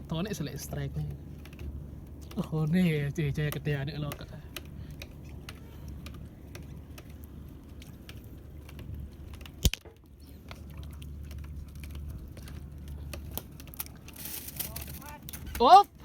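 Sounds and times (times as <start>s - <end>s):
low steady hum: 0.0s - 16.0s
clicks and knocks of fishing line: 3.4s - 15.6s.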